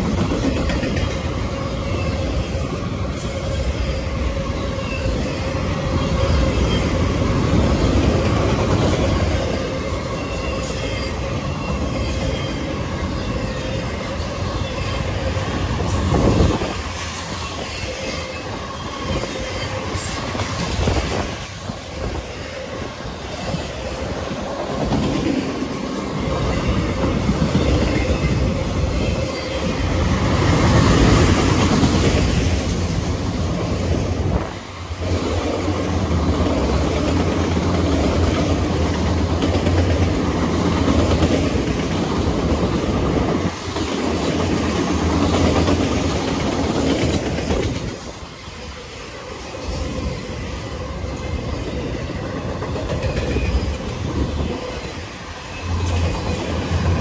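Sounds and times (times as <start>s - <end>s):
freight train cars rolling past: 0.0s - 57.0s
steel wheels clacking over rail joints: 35.0s - 48.7s.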